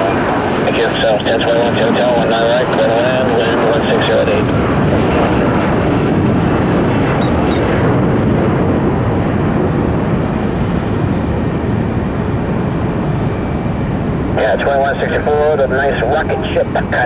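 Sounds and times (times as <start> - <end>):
jet engines roaring: 0.0 - 17.0
faint high whine: 8.8 - 17.0.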